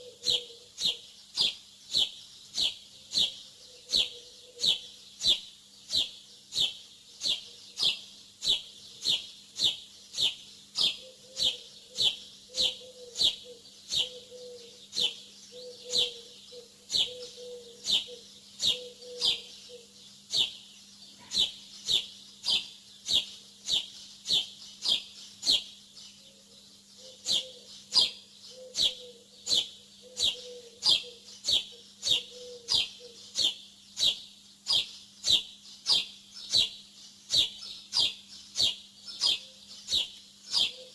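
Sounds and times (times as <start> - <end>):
bird chirping: 0.0 - 40.9.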